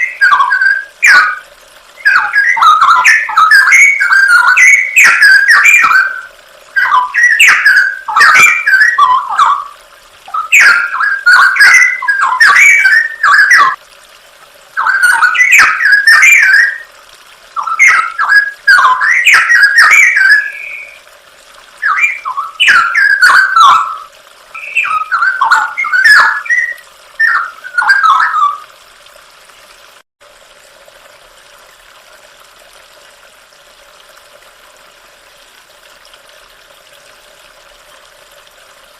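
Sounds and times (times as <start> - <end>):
bird singing whistled phrases: 0.0 - 1.4, 2.0 - 13.8, 14.8 - 16.9, 17.6 - 21.0, 21.8 - 28.7
faint steady hiss: 0.0 - 38.9.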